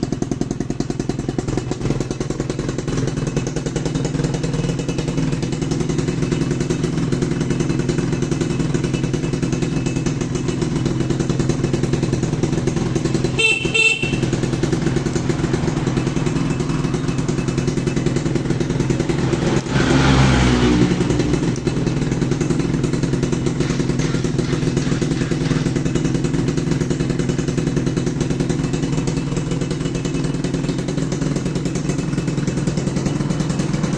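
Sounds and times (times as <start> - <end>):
motorcycle engine idling: 0.0 - 33.9
short horn beep: 13.3 - 14.4.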